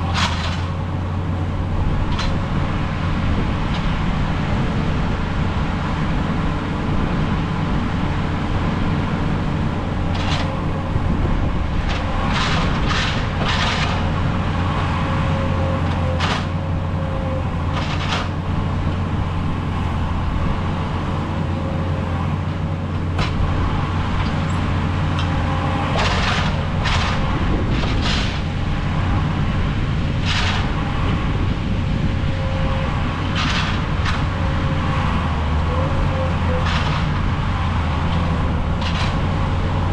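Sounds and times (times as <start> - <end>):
machine clanks and squeaks: 0.0 - 0.8, 35.7 - 37.3
engine whine: 0.0 - 39.9
skid steer diesel engine running: 0.0 - 39.9.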